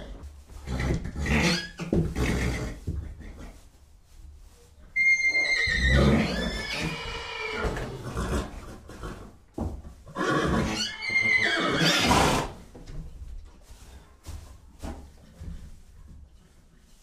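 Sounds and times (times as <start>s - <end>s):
horse whinnying: 0.6s - 2.6s, 5.0s - 9.2s, 10.1s - 12.6s.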